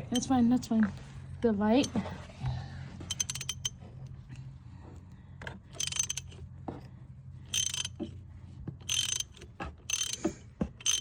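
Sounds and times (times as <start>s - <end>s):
socket ratchet clicking: 3.1s - 3.7s, 5.8s - 6.4s, 7.5s - 8.0s, 8.9s - 11.0s.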